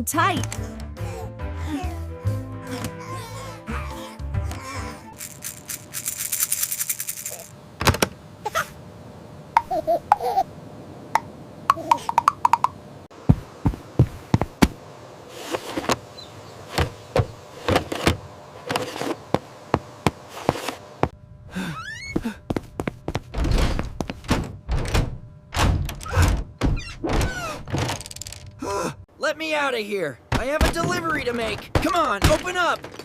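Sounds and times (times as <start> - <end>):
heavy thumps: 13.2 - 14.8
sharp knocks and thuds: 13.2 - 14.8, 30.3 - 33.0
short rising squeaks: 21.7 - 22.2.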